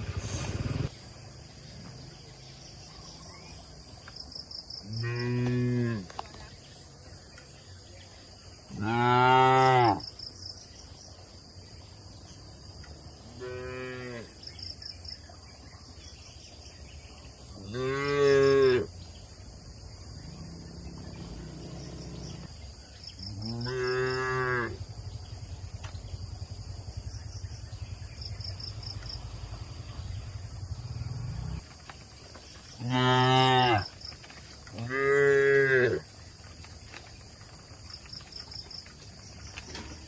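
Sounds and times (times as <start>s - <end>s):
cattle mooing: 23.4s - 24.8s.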